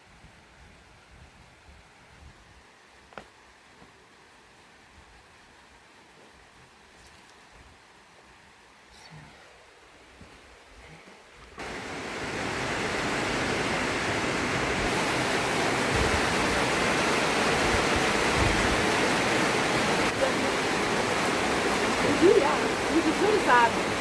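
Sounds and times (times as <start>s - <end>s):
heavy rain falling: 11.6s - 24.0s.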